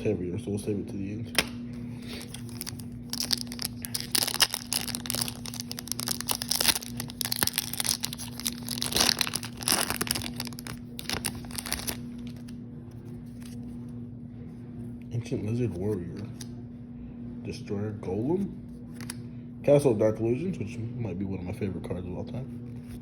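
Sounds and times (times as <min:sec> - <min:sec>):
foil wrapper crinkling and tearing: 0:02.0 - 0:12.6.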